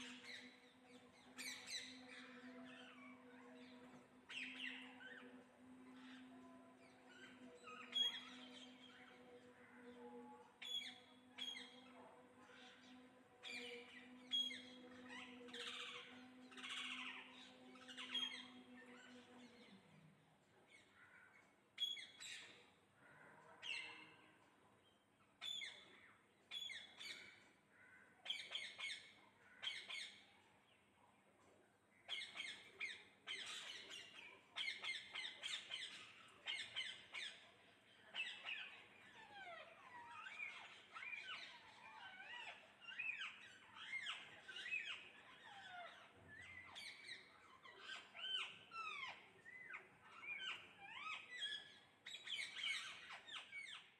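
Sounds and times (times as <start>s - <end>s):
parrots chirping and squawking: 13.5s - 19.7s, 32.1s - 37.4s, 38.1s - 53.9s.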